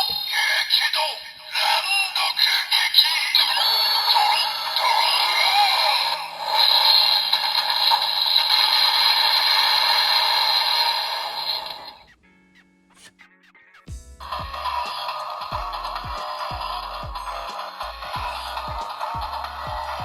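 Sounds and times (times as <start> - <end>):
toy speaker electronic music: 0.0 - 12.2, 12.9 - 20.0.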